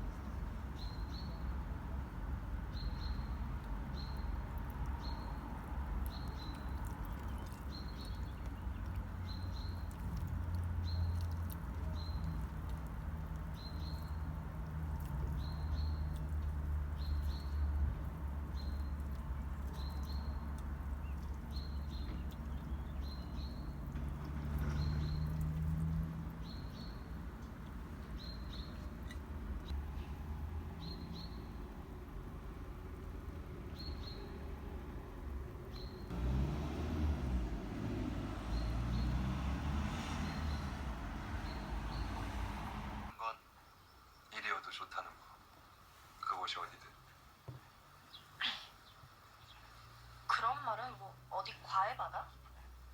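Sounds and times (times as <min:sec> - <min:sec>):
small bird chirping: 0:02.7 - 0:30.2, 0:41.4 - 0:42.3.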